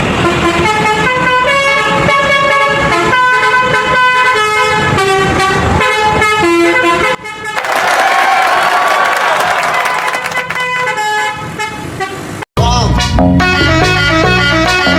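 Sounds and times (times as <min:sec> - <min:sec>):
multi-tone air horns playing tune: 0:00.0 - 0:07.7, 0:09.8 - 0:12.4.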